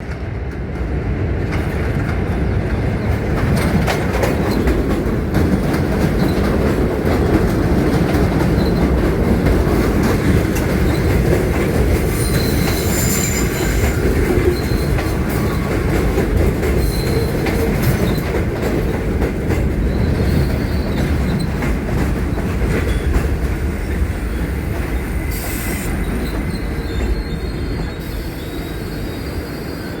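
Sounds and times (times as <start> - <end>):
train wheels rumbling on rails: 0.0 - 30.0
wheels clattering over rail joints: 1.4 - 24.2
high wheel squeal: 12.1 - 15.8, 19.9 - 21.5, 24.4 - 30.0.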